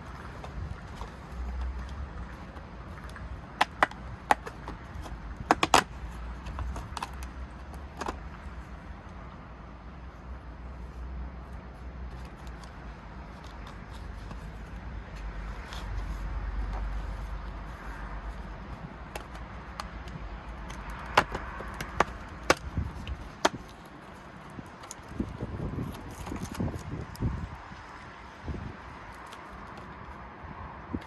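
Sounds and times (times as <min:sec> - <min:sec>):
hands handling small items: 0:00.0 - 0:08.9, 0:12.1 - 0:28.0.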